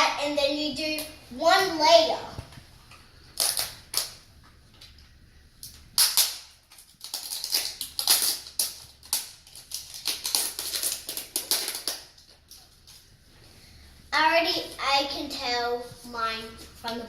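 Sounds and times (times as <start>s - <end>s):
wrapping tearing and rustling: 3.3s - 4.2s, 5.7s - 13.2s.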